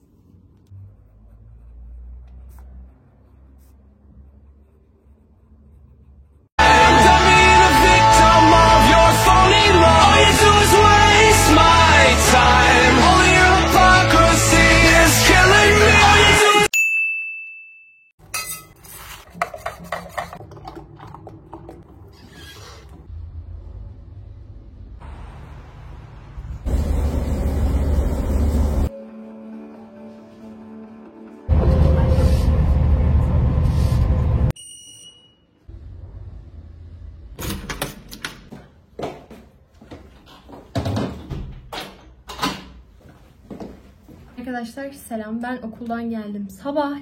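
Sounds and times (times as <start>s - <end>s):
music: 6.6s - 16.7s, 28.9s - 32.6s
bright ding: 16.7s - 18.7s.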